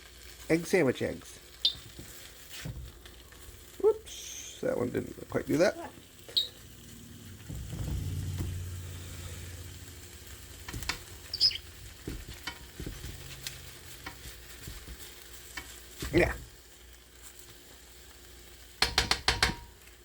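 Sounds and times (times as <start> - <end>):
eggs sizzling in a frying pan: 0.0 - 20.0
low hum: 6.4 - 11.6
utensil scraping a pan: 10.6 - 16.2.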